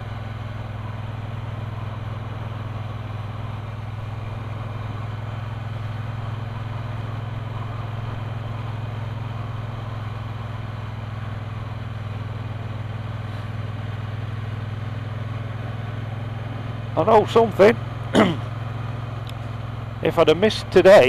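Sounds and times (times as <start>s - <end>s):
motorcycle engine droning: 0.0s - 21.0s.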